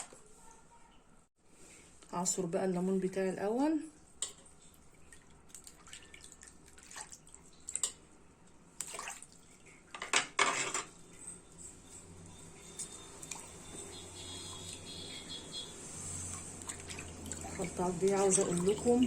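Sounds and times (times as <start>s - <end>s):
juice splashing into water: 8.8s - 9.7s, 16.2s - 19.0s.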